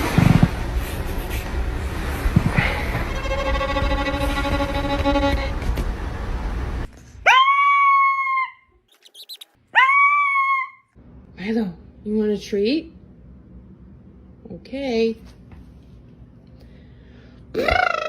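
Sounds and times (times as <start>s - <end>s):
steady rumbling with held tone: 0.0s - 6.9s
pet animal giving high calls: 7.3s - 10.8s.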